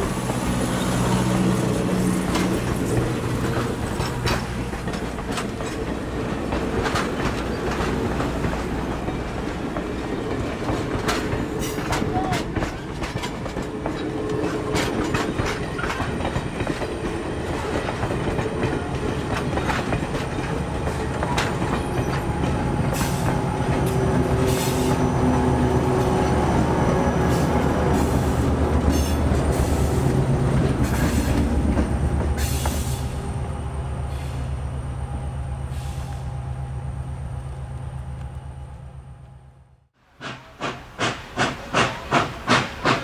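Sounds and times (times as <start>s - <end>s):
wheels clicking over rail joints: 0.0s - 26.7s, 40.2s - 43.0s.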